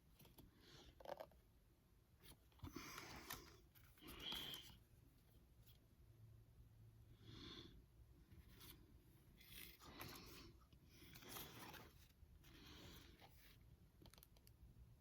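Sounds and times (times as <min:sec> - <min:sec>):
trading cards rubbing and sliding: 0:08.5 - 0:13.6.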